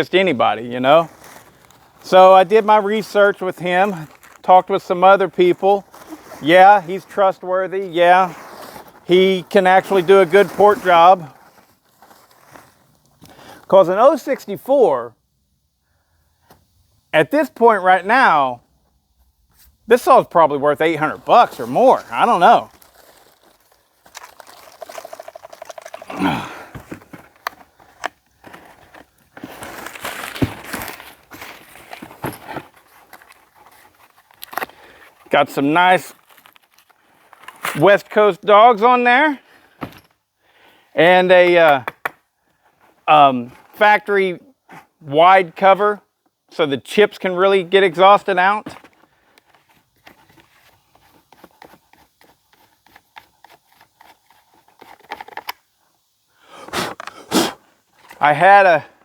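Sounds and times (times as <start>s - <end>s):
rustling and scraping: 0.2s - 13.7s, 19.5s - 37.8s, 48.7s - 55.6s
hands handling plastic and metal parts: 20.8s - 35.3s, 48.7s - 55.6s.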